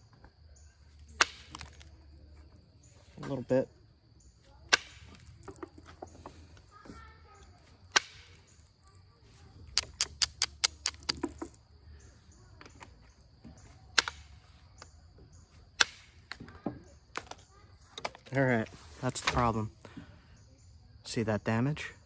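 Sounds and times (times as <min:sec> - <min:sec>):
stone flaking clicks: 0:01.0 - 0:02.0, 0:04.7 - 0:06.1, 0:07.9 - 0:08.8, 0:09.6 - 0:11.6, 0:13.9 - 0:14.9, 0:15.8 - 0:16.4.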